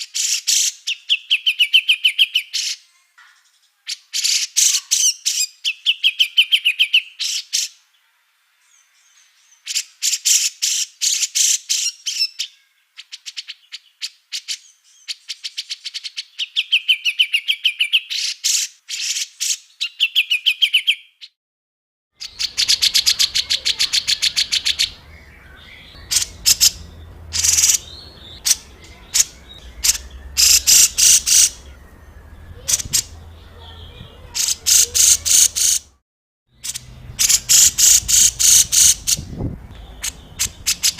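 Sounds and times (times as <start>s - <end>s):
songbirds rattling calls: 22.2s - 36.0s, 36.6s - 40.9s
faint low hum: 24.3s - 34.3s.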